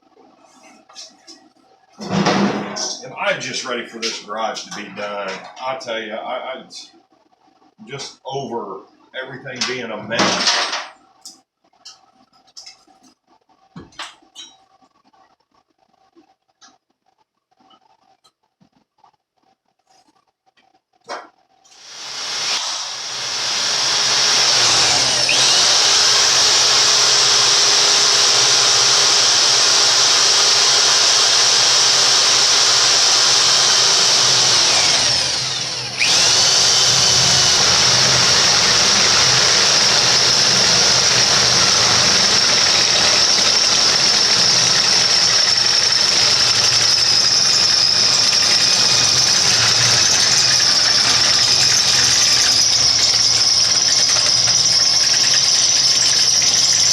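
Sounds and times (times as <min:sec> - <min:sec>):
power drill cutting metal: 0:21.7 - 0:56.9.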